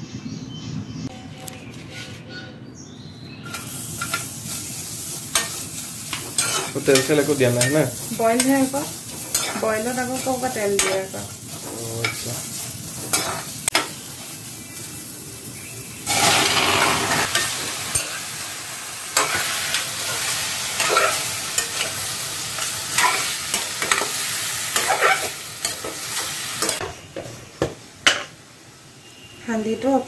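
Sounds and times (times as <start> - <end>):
chicken sizzling in hot pan: 3.4 - 27.1
onions sizzling in a pan: 3.4 - 30.0.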